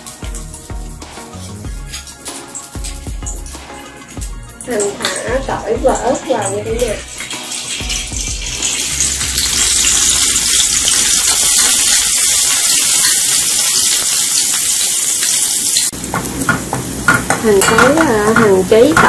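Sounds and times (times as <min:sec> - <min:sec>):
garlic sizzling in hot oil: 0:00.0 - 0:19.0.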